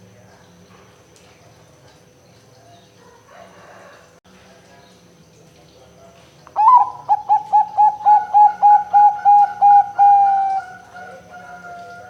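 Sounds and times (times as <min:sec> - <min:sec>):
dove cooing: 0:06.6 - 0:12.0.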